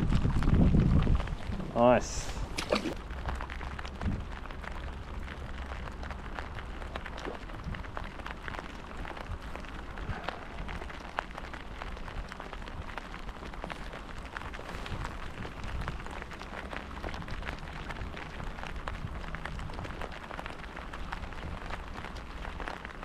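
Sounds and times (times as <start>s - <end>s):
rain drops pattering: 0.0s - 23.0s.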